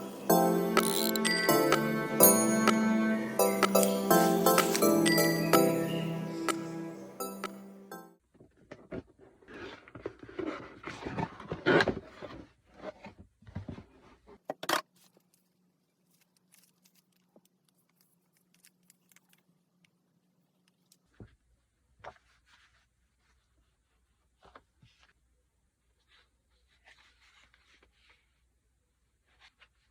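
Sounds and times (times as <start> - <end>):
packaging rustling and scraping: 8.8 - 14.3.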